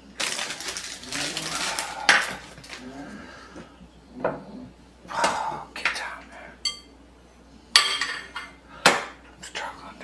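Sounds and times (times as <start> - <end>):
dishes and utensils clattering: 7.7 - 9.6.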